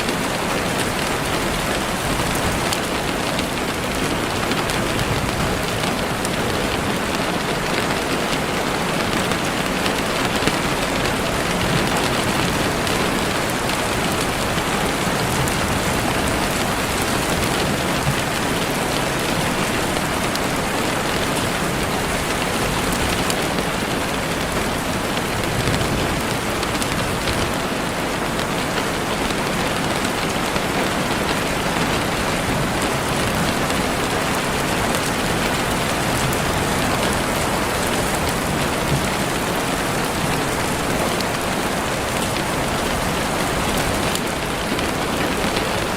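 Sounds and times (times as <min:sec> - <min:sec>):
heavy rain on leaves: 0:00.0 - 0:45.9.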